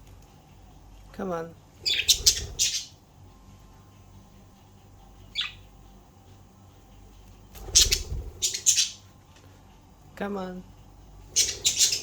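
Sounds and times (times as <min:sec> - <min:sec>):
budgerigar chirping: 0:01.8 - 0:03.0, 0:05.3 - 0:05.7, 0:07.8 - 0:09.0, 0:11.4 - 0:12.0.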